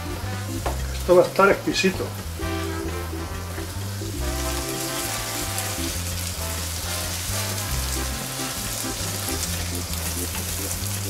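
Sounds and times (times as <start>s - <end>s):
background music with bass: 0.0s - 11.0s
rice sizzling in oil: 2.6s - 11.0s.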